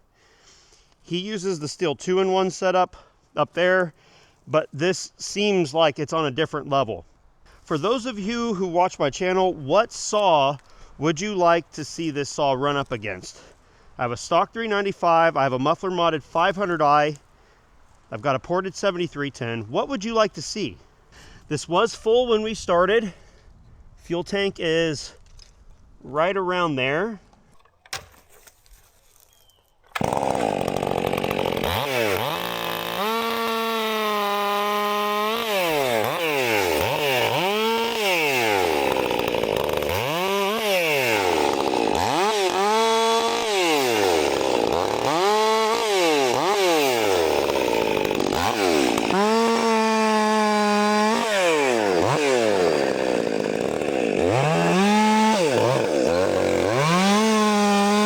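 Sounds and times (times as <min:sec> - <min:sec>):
chainsaw cutting wood: 0:29.9 - 0:58.0.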